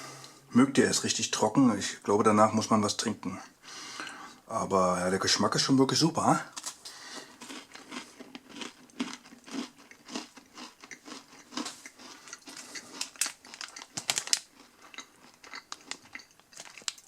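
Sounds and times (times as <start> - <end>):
chewing crunchy granola bar: 6.6 - 17.0.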